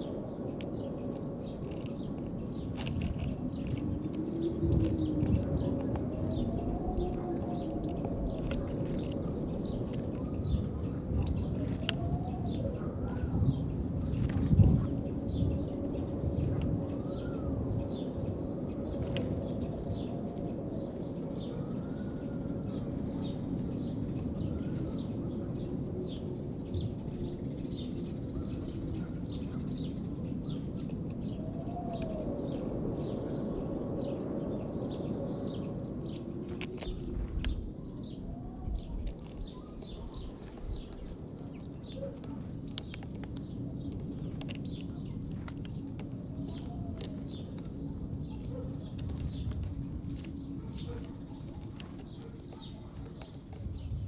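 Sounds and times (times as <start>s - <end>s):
sparrows chirping: 0.0s - 54.0s
low arching bird calls: 15.2s - 37.2s.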